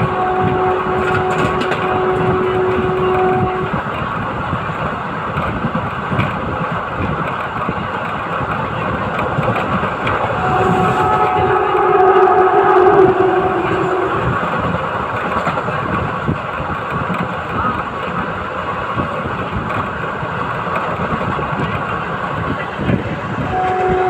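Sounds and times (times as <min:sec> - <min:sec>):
diesel locomotive engine chugging: 0:00.0 - 0:24.0
steady high tone: 0:09.6 - 0:15.2.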